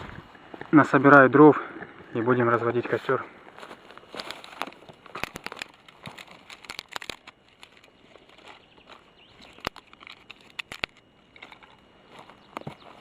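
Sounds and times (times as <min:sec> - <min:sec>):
footsteps through dry forest litter: 0:02.0 - 0:13.0
twigs snapping: 0:04.0 - 0:12.9.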